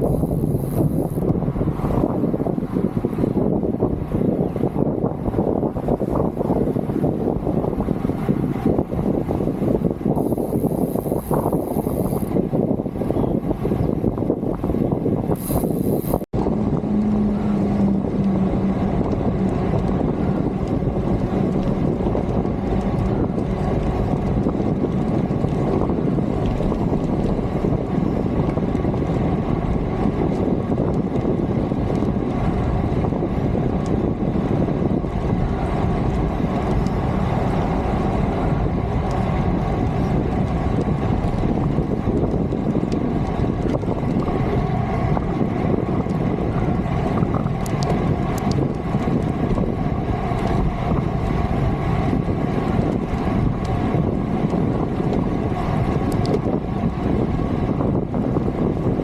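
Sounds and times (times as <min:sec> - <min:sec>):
low hum: 0:00.0 - 0:03.5, 0:07.9 - 0:30.3
road noise: 0:00.0 - 0:59.0
wind noise on microphone: 0:00.0 - 0:59.0.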